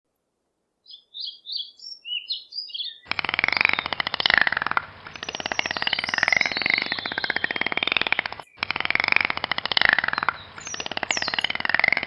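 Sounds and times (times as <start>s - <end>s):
bird chirping: 0.8s - 12.0s
loud fast pulsing rattle: 3.1s - 12.0s.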